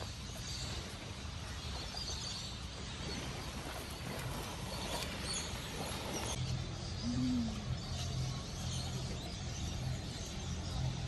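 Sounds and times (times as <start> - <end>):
faint high bird chirps: 6.2 - 10.2.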